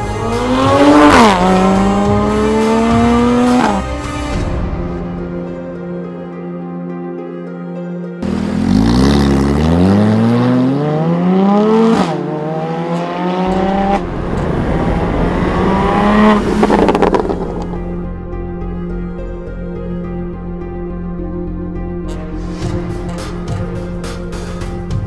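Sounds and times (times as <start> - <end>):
car engine accelerating: 0.0 - 4.0, 8.2 - 18.9
exhaust crackles and pops: 16.5 - 17.8.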